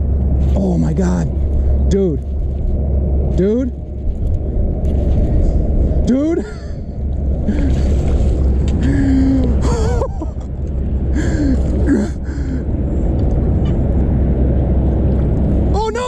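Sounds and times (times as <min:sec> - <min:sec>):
steady low rumble: 0:00.0 - 0:16.0
men gasping and groaning: 0:06.4 - 0:10.4, 0:11.1 - 0:12.8.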